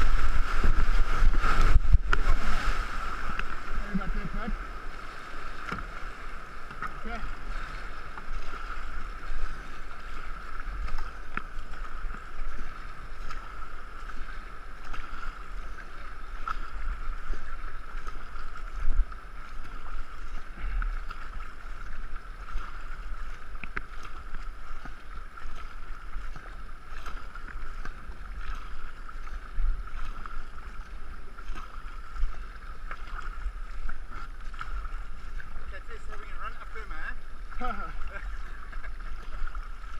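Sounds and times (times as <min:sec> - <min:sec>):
wind buffeting microphone: 0:00.0 - 0:04.6
water rushing and splashing: 0:00.0 - 0:39.9.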